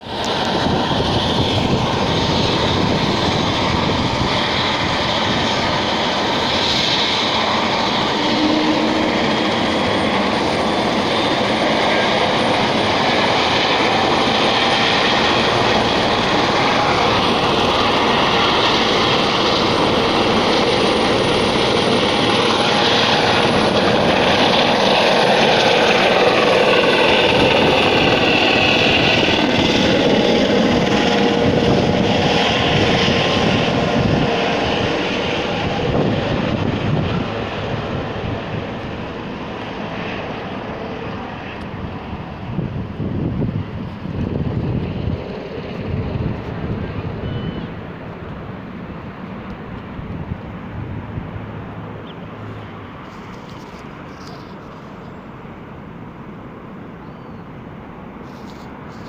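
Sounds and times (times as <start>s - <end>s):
helicopter rotor and turbine: 0.0s - 59.0s
high whine rising in pitch: 6.4s - 30.2s.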